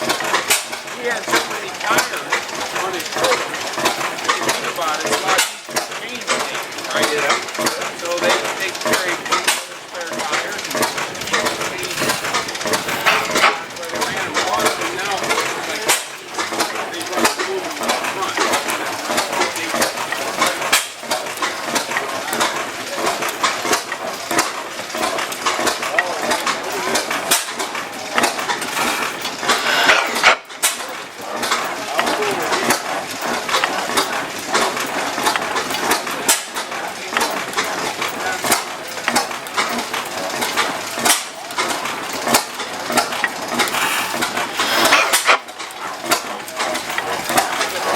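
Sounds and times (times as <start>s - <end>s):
stationary engine clattering: 0.0s - 47.9s.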